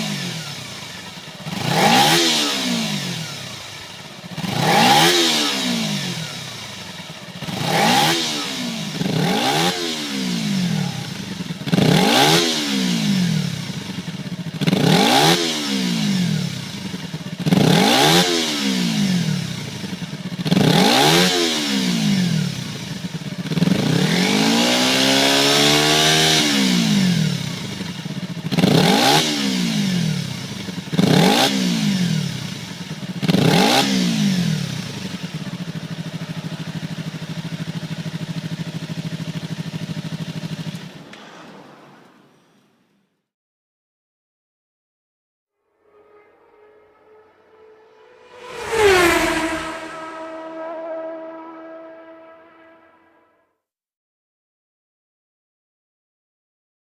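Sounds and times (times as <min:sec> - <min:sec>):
motorcycle engine revving: 0:00.1 - 0:22.4, 0:45.7 - 0:53.4.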